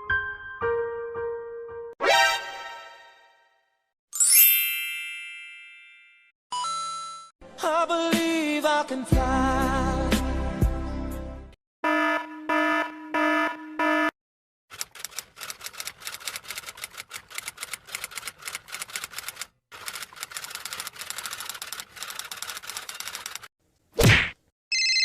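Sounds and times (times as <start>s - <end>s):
rapid key clicks: 14.7s - 23.5s.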